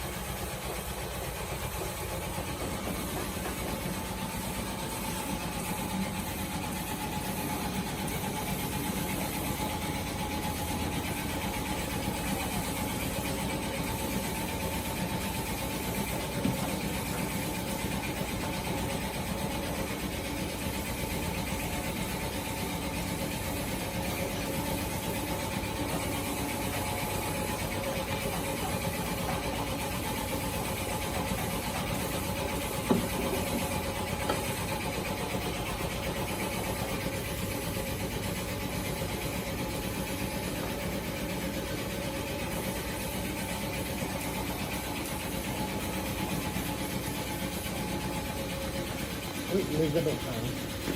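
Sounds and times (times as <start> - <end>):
air compressor humming: 0.0 - 50.9.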